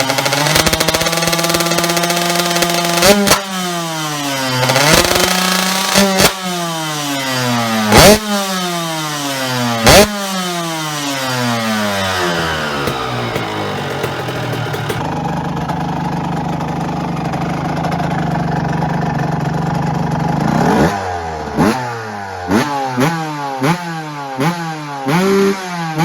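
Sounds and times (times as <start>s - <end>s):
loud exhaust cracks: 0.0s - 6.8s, 9.8s - 20.2s
two-stroke motocross engine: 0.0s - 26.0s.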